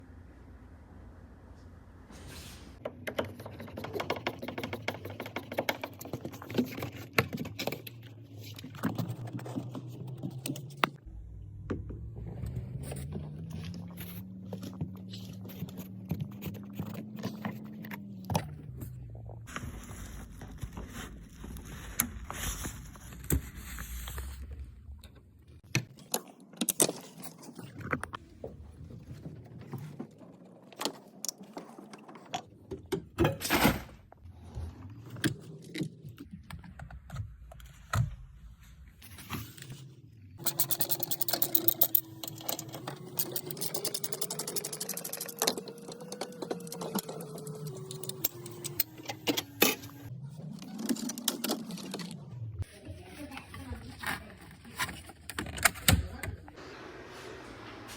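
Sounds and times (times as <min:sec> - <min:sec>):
motor humming: 0:40.4 - 0:52.6.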